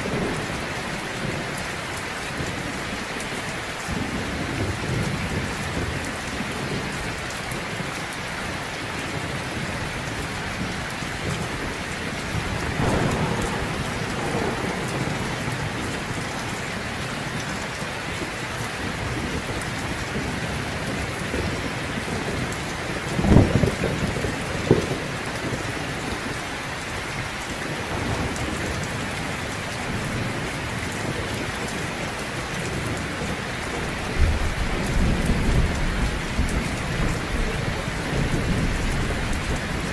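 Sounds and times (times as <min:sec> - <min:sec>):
heavy rain falling: 0:00.0 - 0:39.9
thunder: 0:10.4 - 0:20.0, 0:22.9 - 0:26.2, 0:27.9 - 0:39.9.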